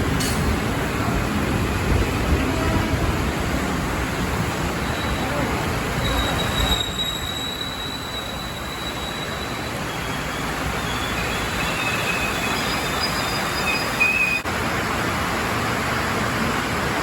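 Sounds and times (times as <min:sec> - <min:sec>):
electric train moving: 0:00.0 - 0:14.4
wheel squeal: 0:04.8 - 0:14.4.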